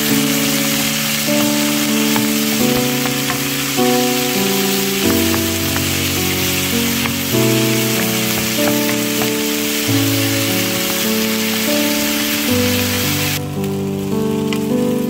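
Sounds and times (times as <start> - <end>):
vegetables sizzling in hot oil: 0.0 - 15.0
wooden spatula stirring: 0.3 - 11.9.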